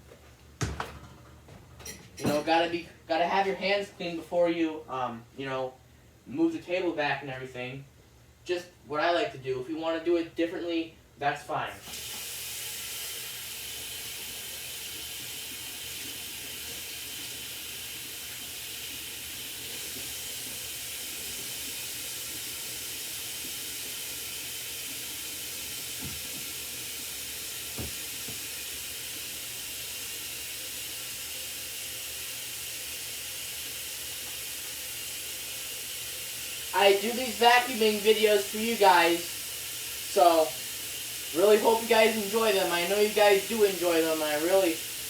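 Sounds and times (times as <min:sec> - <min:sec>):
tap running into a sink: 0:00.6 - 0:02.5, 0:11.8 - 0:29.4.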